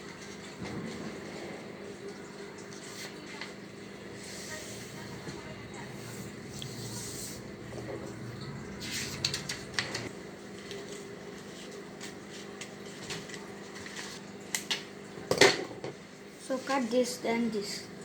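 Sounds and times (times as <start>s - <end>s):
faint room hum: 0.0s - 18.0s
paper folding and crackling: 8.8s - 14.8s.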